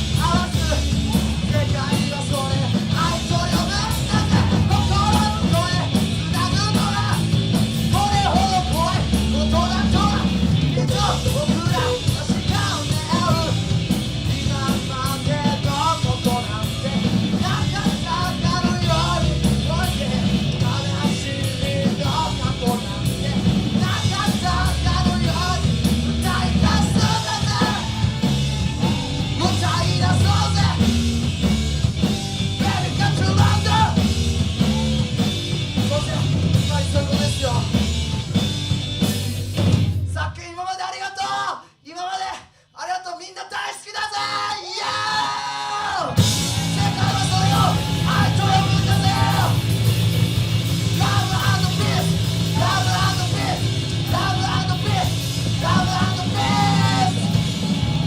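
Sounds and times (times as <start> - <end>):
electric guitars: 0.0 - 40.0, 46.1 - 58.0
bass guitar: 0.0 - 40.4, 46.0 - 58.0
drums: 0.0 - 58.0
person singing: 7.9 - 31.0, 32.4 - 35.0, 44.3 - 49.8, 50.8 - 58.0.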